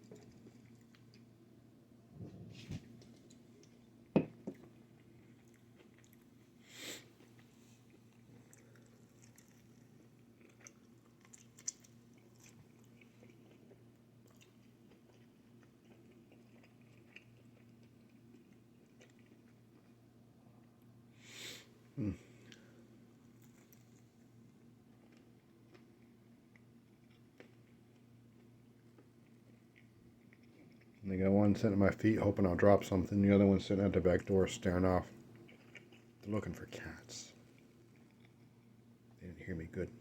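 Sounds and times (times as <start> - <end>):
chewing and biting food: 0.0 - 1.4, 4.6 - 6.6, 7.2 - 20.8, 23.3 - 31.0, 34.0 - 38.8
low steady hum: 0.0 - 40.0.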